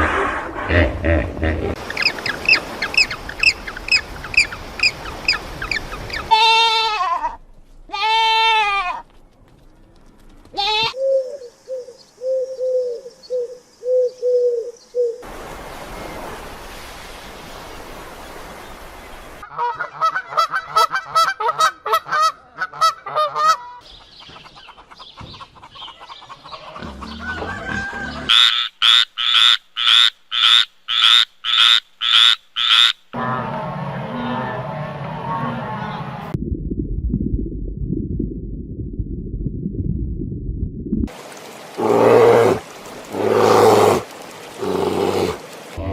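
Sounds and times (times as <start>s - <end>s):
loud evenly spaced calls: 1.8s - 6.7s, 27.8s - 33.1s
animal bleat: 6.3s - 9.0s, 10.5s - 11.0s
low repeated animal calls: 26.3s - 36.2s, 41.7s - 45.9s
animal hiss: 41.2s - 45.8s.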